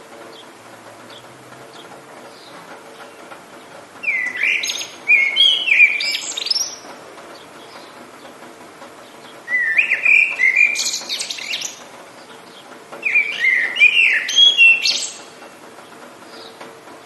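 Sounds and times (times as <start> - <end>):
rain hissing: 0.0 - 17.0
songbird singing sliding whistles: 4.0 - 6.8, 9.4 - 11.8, 13.0 - 15.3.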